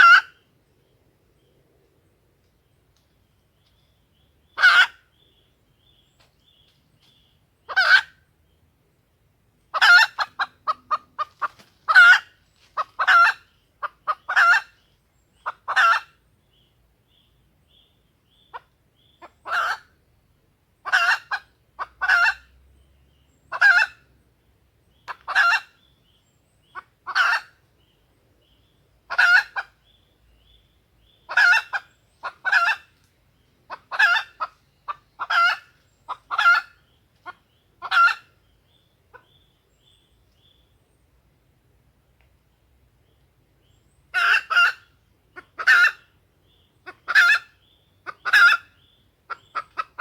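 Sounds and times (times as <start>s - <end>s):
junglefowl calling: 0.0s - 0.5s, 4.5s - 5.3s, 7.7s - 8.2s, 9.7s - 14.8s, 15.4s - 16.2s, 18.4s - 20.0s, 20.8s - 22.6s, 23.5s - 24.1s, 25.0s - 25.8s, 26.7s - 27.6s, 29.1s - 29.9s, 31.2s - 33.0s, 33.7s - 38.4s, 44.1s - 50.0s.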